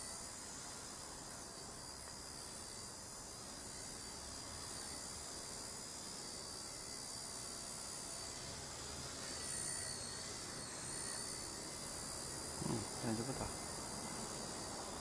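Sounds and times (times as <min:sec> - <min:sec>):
toy helicopter whining: 0:07.4 - 0:14.4.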